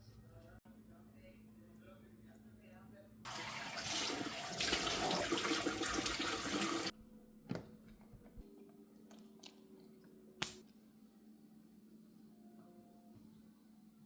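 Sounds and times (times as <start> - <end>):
tap water running into sink: 3.3 - 6.9.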